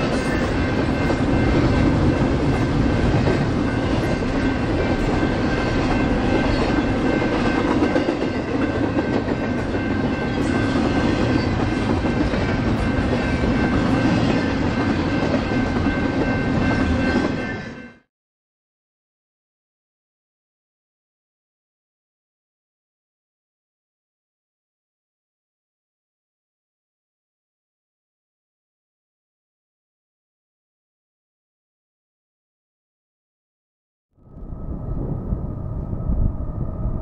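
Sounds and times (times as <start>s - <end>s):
freight train rumbling past: 0.0s - 18.1s, 34.2s - 37.0s
wheels clacking on rails: 0.0s - 18.1s.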